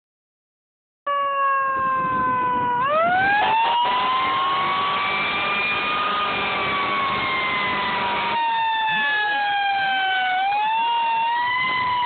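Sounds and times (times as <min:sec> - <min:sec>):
fire engine siren wailing: 0:01.1 - 0:12.0.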